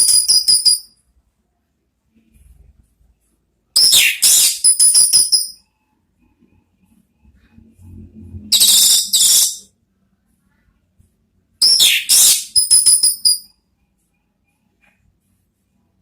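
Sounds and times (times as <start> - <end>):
bird high chirps: 0.0 - 0.9, 3.8 - 5.6, 8.5 - 9.7, 11.6 - 13.5
bird harsh calls: 8.6 - 9.6, 11.6 - 12.7.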